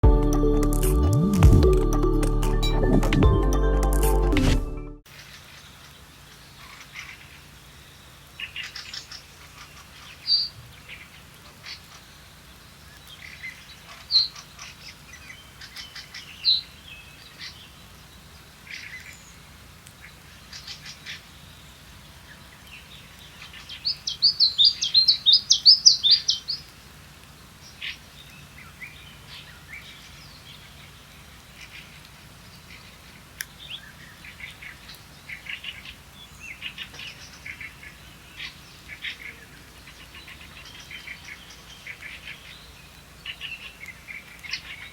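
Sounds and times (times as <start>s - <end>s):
songbirds chirping and whistling: 12.8s - 26.7s, 27.6s - 44.9s
bird trilling song: 23.4s - 26.7s.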